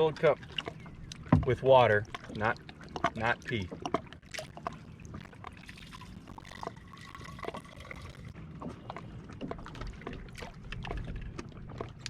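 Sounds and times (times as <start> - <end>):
water pouring into a cup: 5.7 - 8.3.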